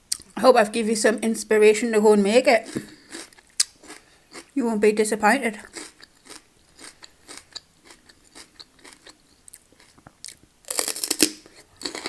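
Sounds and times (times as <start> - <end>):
chewing crunchy food: 2.6 - 4.6, 5.6 - 12.0.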